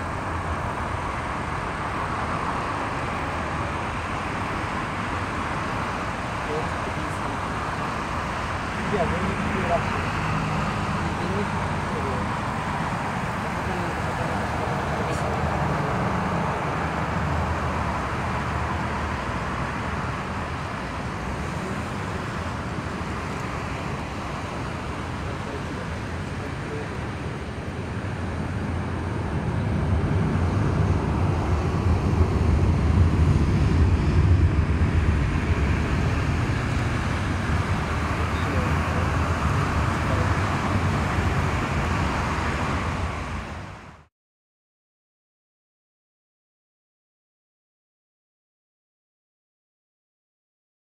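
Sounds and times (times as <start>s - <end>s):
jet engine rumble: 0.0s - 44.1s.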